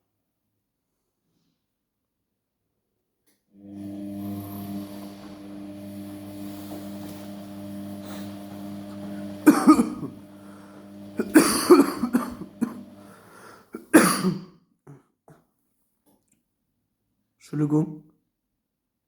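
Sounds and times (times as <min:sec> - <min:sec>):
washing machine humming: 0:03.6 - 0:14.2
person coughing: 0:09.4 - 0:10.1, 0:11.2 - 0:12.9, 0:13.6 - 0:15.0.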